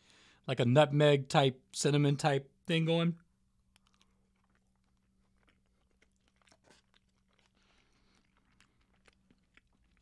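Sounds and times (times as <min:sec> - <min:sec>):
chewing soft food: 0:03.2 - 0:10.0.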